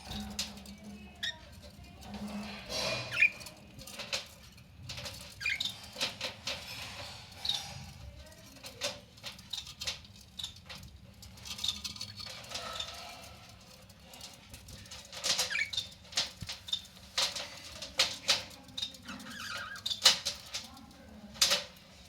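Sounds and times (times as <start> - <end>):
small clicks and scratching: 0.0 - 22.0
budgies chirping: 2.4 - 3.6, 5.1 - 6.0, 15.3 - 15.9.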